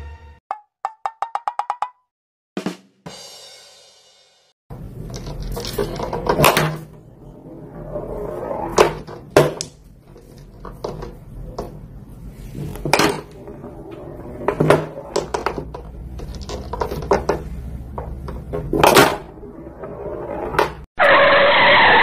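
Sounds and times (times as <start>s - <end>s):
balls knocking against rails: 12.9s - 19.2s
toy pool balls clacking: 15.1s - 18.8s.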